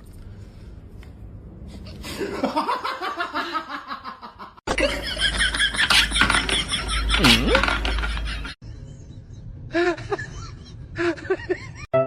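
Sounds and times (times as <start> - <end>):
people laughing: 2.2 - 8.6.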